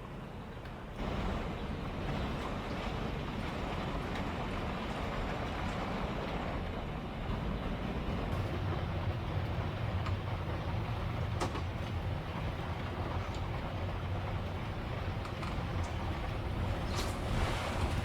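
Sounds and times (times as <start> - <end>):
wind buffeting a vehicle: 1.0 - 18.0
driving rain: 7.7 - 18.0.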